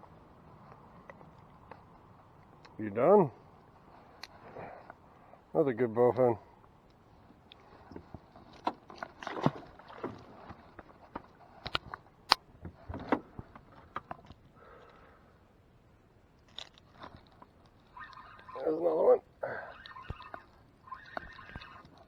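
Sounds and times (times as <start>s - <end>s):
knocks and scrapes on boat hull: 7.8s - 12.0s, 12.6s - 14.3s.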